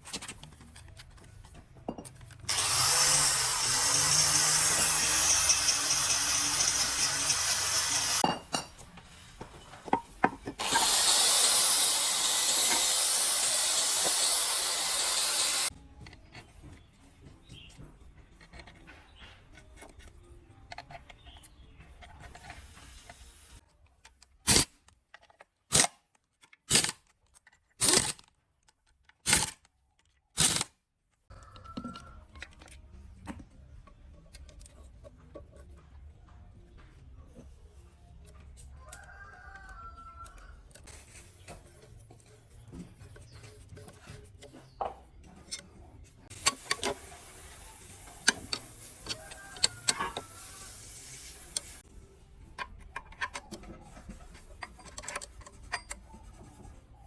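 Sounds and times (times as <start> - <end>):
power tool running: 2.5 - 8.2, 10.6 - 15.7.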